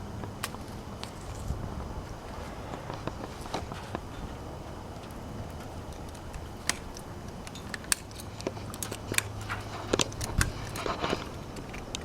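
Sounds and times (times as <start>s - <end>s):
pruning shears snipping: 5.0s - 12.0s.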